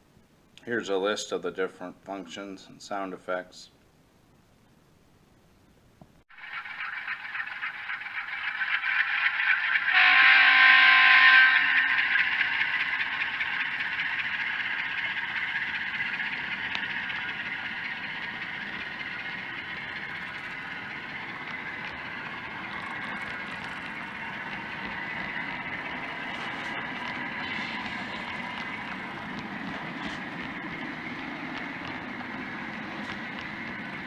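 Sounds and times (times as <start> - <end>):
faint hum: 11.4 - 34.0.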